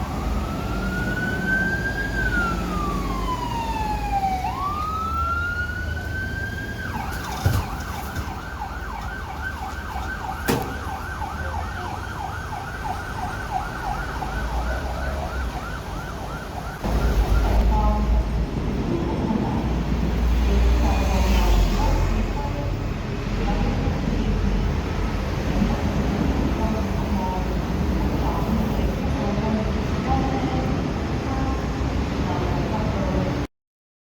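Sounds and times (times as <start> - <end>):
motorcycle siren wailing and yelping: 0.0 - 17.6
loud low rumble: 16.8 - 31.0.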